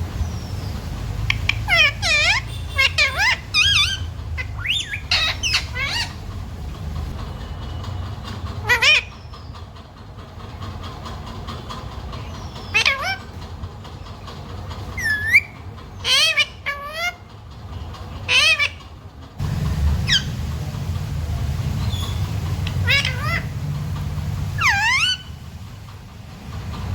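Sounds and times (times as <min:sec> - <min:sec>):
parrot calling: 0:00.1 - 0:07.1, 0:07.8 - 0:09.5, 0:12.2 - 0:13.5, 0:14.9 - 0:17.3, 0:18.2 - 0:26.0
low hum: 0:19.4 - 0:26.9.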